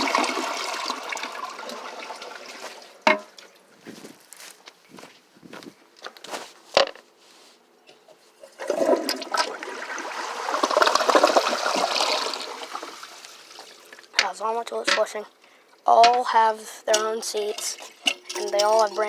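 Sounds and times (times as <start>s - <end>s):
toilet flushing: 0.0s - 3.0s, 8.6s - 14.1s.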